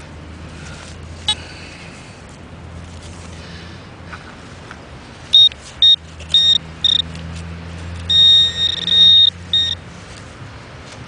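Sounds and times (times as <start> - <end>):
high-pitched probe beeps: 5.4 - 7.1, 8.1 - 9.8.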